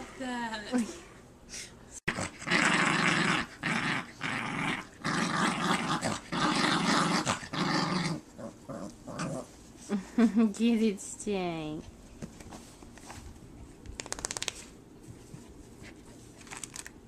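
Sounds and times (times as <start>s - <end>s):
dog growling in play: 2.1s - 9.6s.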